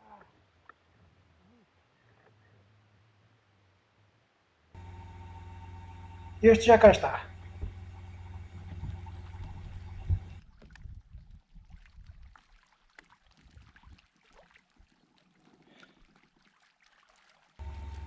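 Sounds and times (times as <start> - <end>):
low steady rumble: 4.8 - 11.1, 17.6 - 18.0
small water splashes: 7.8 - 18.0.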